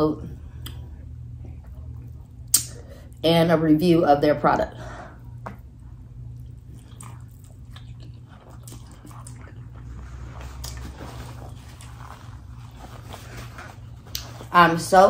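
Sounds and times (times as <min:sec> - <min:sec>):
low steady hum: 0:00.0 - 0:15.0
wet mouth smacks and clicks: 0:02.5 - 0:02.8
person chewing noodles: 0:06.2 - 0:14.5.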